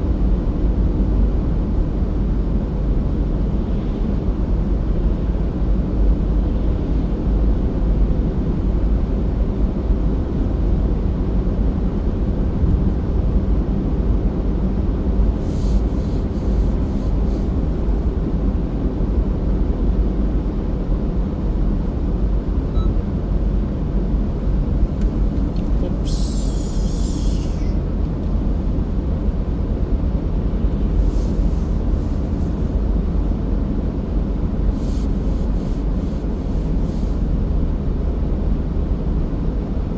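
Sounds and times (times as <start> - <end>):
car interior road rumble: 0.0 - 39.9
brief hissing: 25.8 - 27.8.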